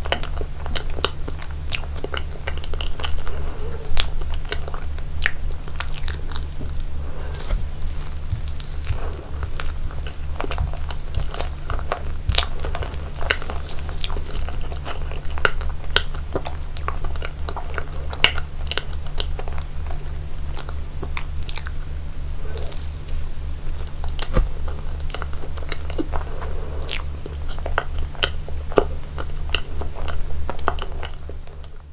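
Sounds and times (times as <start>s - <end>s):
crunchy bites and chewing: 20.5s - 28.9s.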